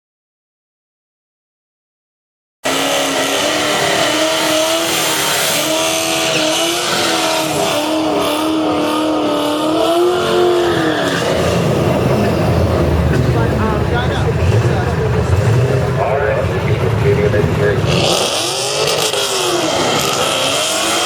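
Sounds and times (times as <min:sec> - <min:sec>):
drag car engine revving: 0:02.6 - 0:21.0.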